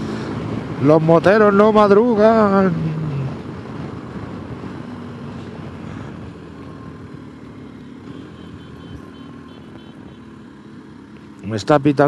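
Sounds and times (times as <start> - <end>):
wind noise: 0.0 - 7.2
motorcycle engine running: 0.0 - 12.0.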